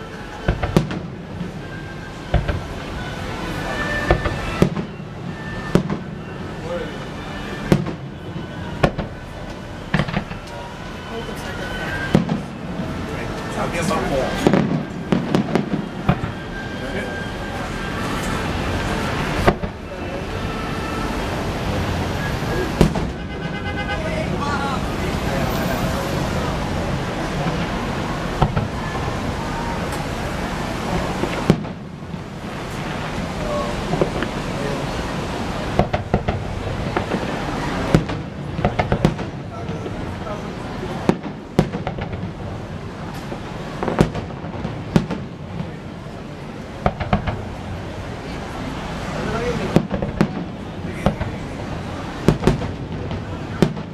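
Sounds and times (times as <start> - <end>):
fireworks bangs: 0.0 - 53.9
outdoor background noise: 0.0 - 53.9
sharp bangs: 0.3 - 21.1, 22.6 - 24.0.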